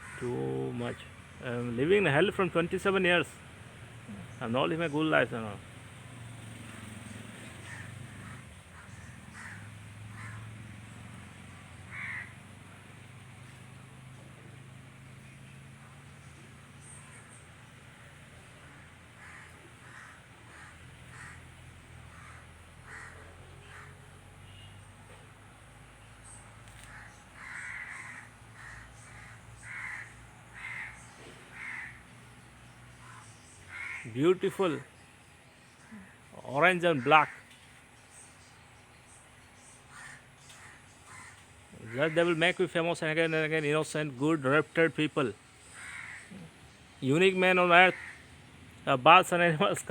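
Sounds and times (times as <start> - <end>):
bird calling: 6.5 - 13.6, 15.2 - 25.2, 26.2 - 49.9.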